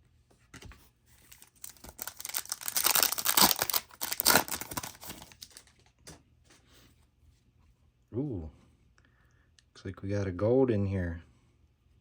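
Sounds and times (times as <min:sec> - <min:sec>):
foil wrapper tearing and crinkling: 0:01.3 - 0:05.8.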